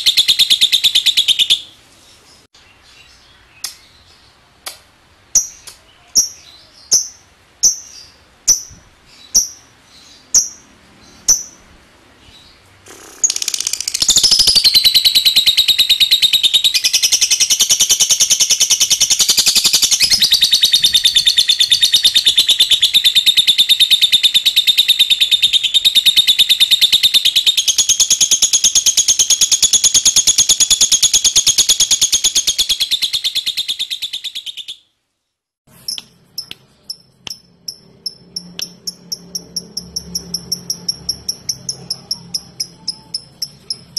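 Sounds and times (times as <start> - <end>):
lovebird chirps: 0.0 - 4.3, 5.3 - 11.7, 12.3 - 35.0, 35.7 - 43.9
lovebird chattering trill: 12.9 - 34.8, 35.8 - 43.9.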